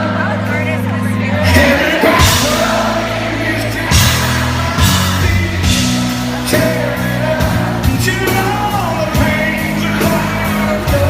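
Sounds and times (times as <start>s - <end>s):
person singing: 0.0s - 11.0s
steady bass notes: 0.0s - 11.0s
drum hits: 1.6s - 10.3s.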